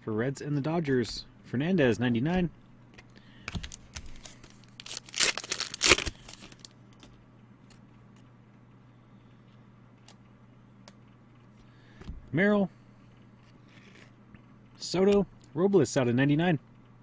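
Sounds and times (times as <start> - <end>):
plastic packaging crinkling and tearing: 3.5 - 6.8.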